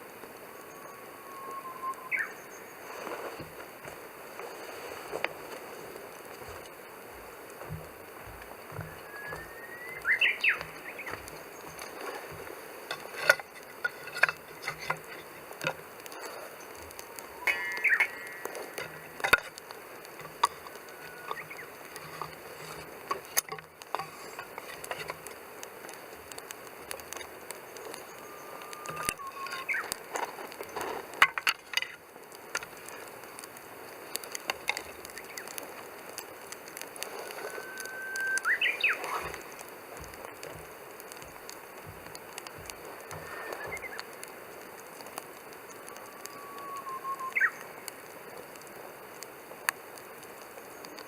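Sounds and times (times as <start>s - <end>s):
low hiss: 0.0s - 51.0s
wood fire crackling and popping: 0.0s - 51.0s
high whistling tones: 0.4s - 3.1s, 8.7s - 12.0s, 16.6s - 19.2s, 20.6s - 21.9s, 27.7s - 30.0s, 37.2s - 40.4s, 42.0s - 44.2s, 45.5s - 47.8s.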